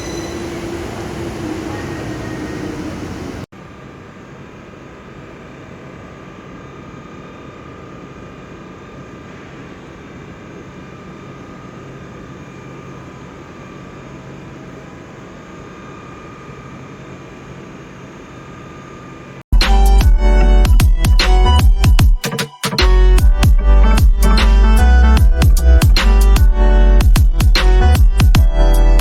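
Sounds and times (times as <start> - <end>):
train rumble: 0.0 - 3.5.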